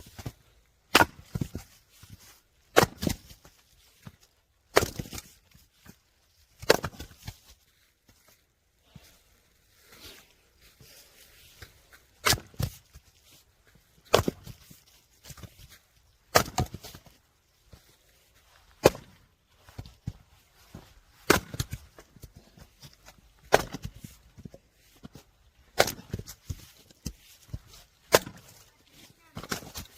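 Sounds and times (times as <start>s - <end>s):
firewood cracking under strikes: 0.9s - 1.6s, 2.7s - 3.4s, 4.7s - 5.3s, 16.3s - 17.0s, 21.2s - 21.8s, 23.4s - 24.0s, 25.7s - 26.4s, 28.0s - 28.6s.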